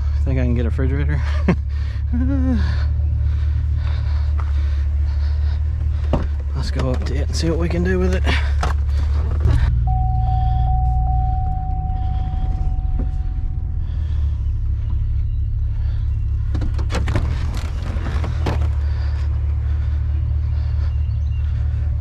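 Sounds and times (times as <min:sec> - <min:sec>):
truck engine rumbling: 0:00.0 - 0:22.0
thin steady whine: 0:09.8 - 0:16.4
knocks and rattles: 0:16.4 - 0:19.2.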